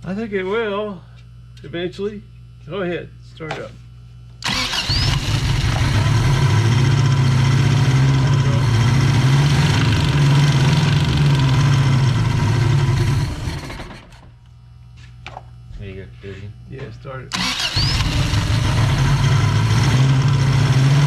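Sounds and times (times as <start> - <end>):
car engine running: 4.4 - 14.2, 17.6 - 21.0.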